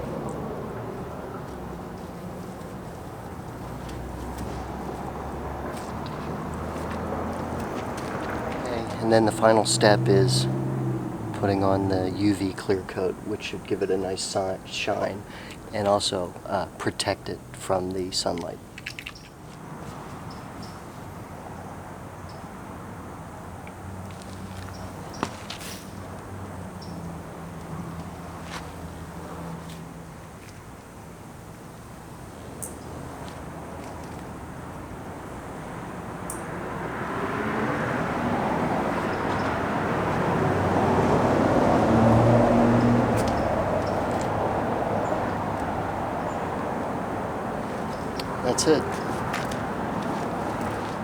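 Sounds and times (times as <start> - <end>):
passing vehicle engine: 0.0 - 15.5, 32.2 - 51.0.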